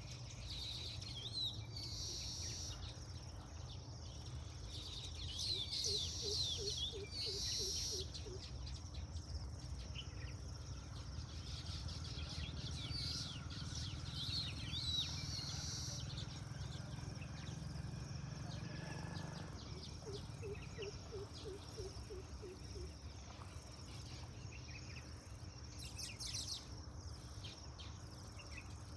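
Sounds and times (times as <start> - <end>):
birds chirping: 4.7 - 23.0.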